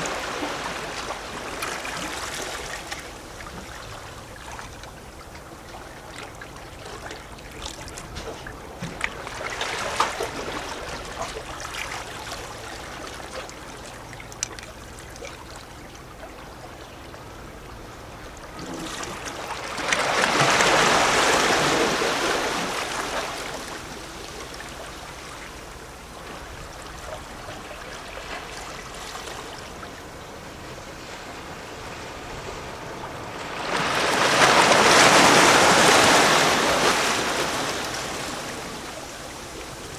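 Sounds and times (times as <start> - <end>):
small water splashes: 0.0 - 30.1
waves lapping against rocks: 0.0 - 39.9
bigger wave surging in: 18.6 - 39.9.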